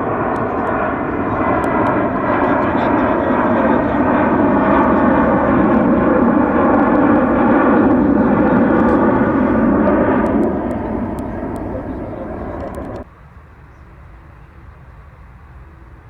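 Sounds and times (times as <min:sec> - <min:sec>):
jet engines at takeoff: 0:00.0 - 0:13.1.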